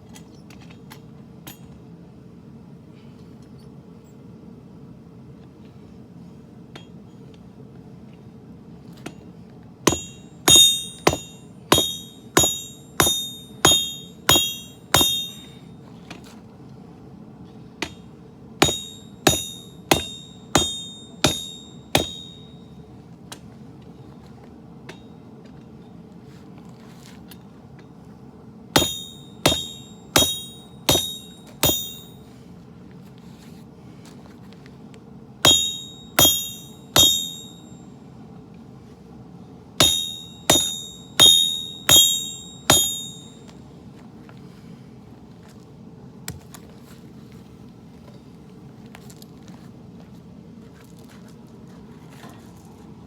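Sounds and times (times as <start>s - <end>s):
steady low hum: 0.0s - 52.1s
hammer ringing on an anvil: 9.9s - 15.7s, 18.6s - 22.6s, 28.8s - 32.2s, 35.4s - 37.9s, 39.8s - 43.5s.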